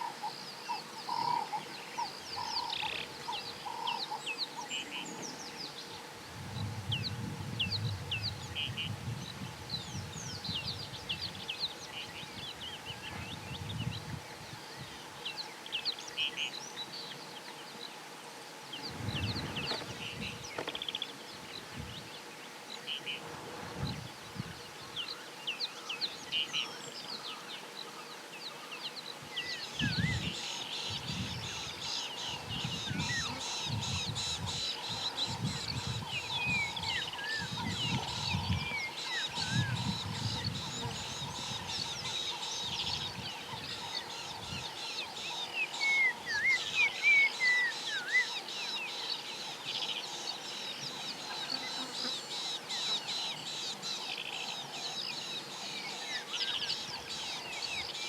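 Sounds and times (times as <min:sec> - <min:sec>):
wild birds calling: 0:00.0 - 0:06.0, 0:18.7 - 0:23.3, 0:24.2 - 0:58.0
pulsing insect chorus: 0:29.6 - 0:58.0.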